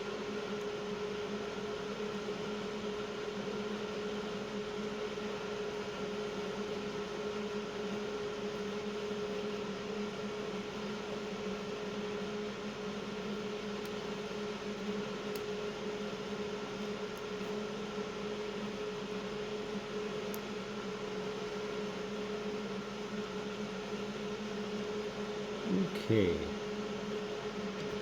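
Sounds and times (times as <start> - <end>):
faint small clicks: 20.3 - 20.5.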